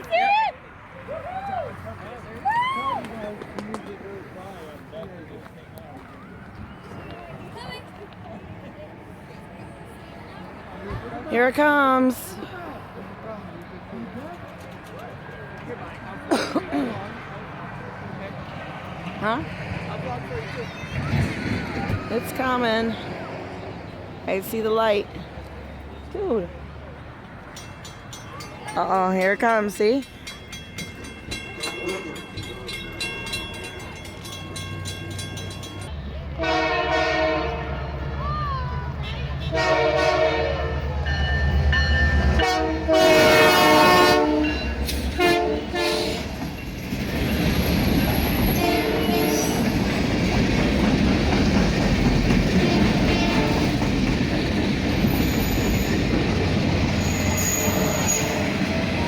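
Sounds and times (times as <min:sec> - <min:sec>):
train rumbling and clacking past: 0:03.0 - 0:59.0
crossing bell ringing: 0:27.4 - 0:38.2, 0:39.0 - 0:49.8, 0:55.0 - 0:59.0
locomotive air horn blasts: 0:36.4 - 0:37.9, 0:39.0 - 0:40.9, 0:42.4 - 0:46.3, 0:48.5 - 0:49.6, 0:52.6 - 0:53.7.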